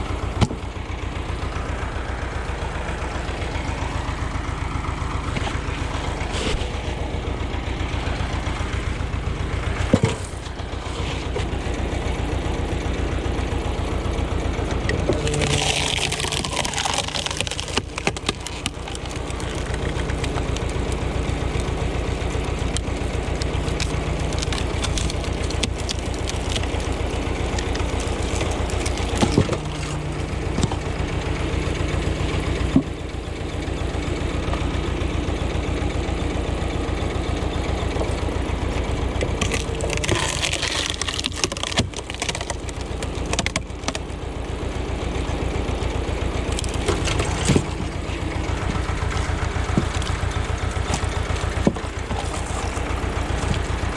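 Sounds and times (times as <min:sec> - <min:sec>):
tractor diesel engine running: 0:00.0 - 0:53.9
wood splitting cracks: 0:14.9 - 0:30.9, 0:39.2 - 0:44.2, 0:46.4 - 0:53.9.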